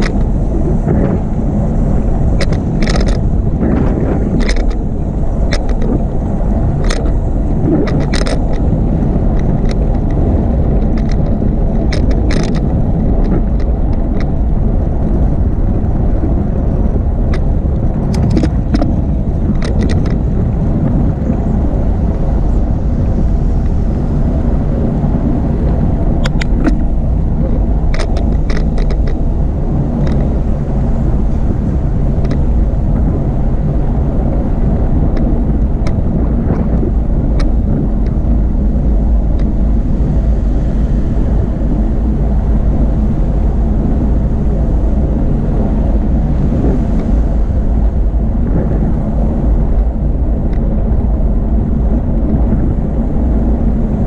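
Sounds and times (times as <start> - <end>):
sharp clicks and rattles: 0.0 - 23.9, 25.7 - 40.4
bicycle rolling noise: 0.0 - 54.0
wind: 0.0 - 54.0.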